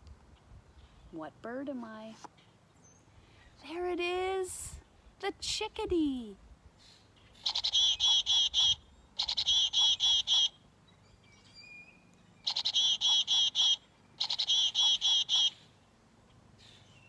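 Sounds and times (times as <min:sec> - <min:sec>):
chickadee calling: 0:07.3 - 0:10.6, 0:12.4 - 0:15.8.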